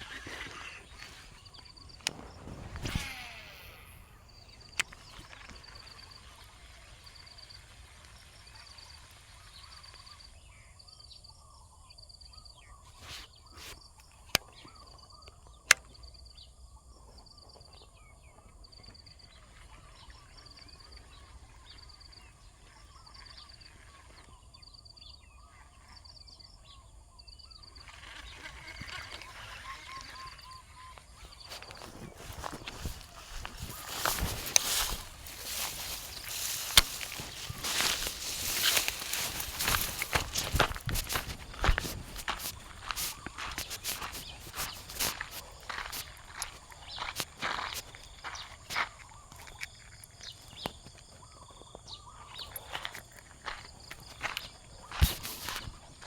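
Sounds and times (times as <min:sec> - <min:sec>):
faint chirping: 0:00.0 - 0:56.0
sharp clicks: 0:00.2 - 0:05.9, 0:31.5 - 0:49.7
rustling noise: 0:31.2 - 0:48.8, 0:53.8 - 0:56.0.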